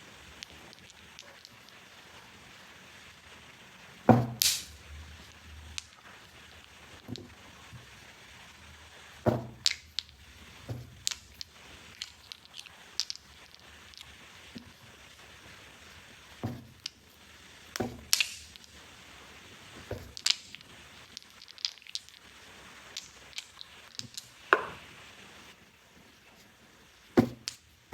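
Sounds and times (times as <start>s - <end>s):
soft thump: 4.1s - 4.4s, 9.3s - 9.7s, 16.4s - 16.7s, 27.2s - 27.5s.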